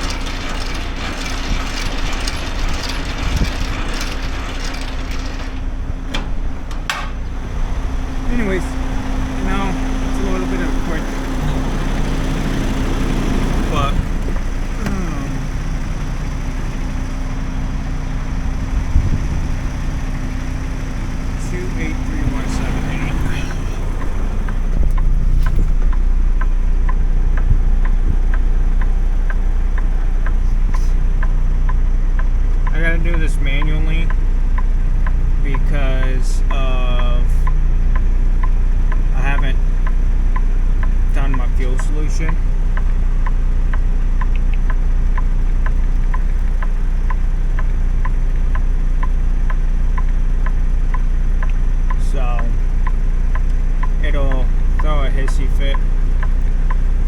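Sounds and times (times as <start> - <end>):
flasher relay ticking: 0.0 - 11.4, 13.6 - 57.0
truck engine idling: 0.0 - 57.0
indicator flasher clicking: 37.4 - 57.0.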